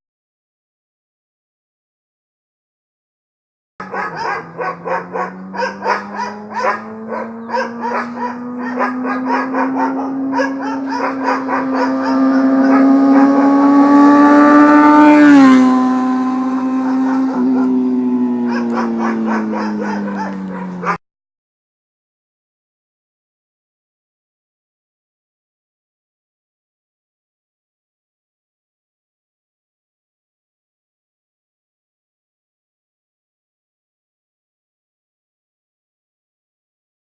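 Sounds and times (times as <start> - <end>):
motorcycle engine revving: 3.8 - 21.0.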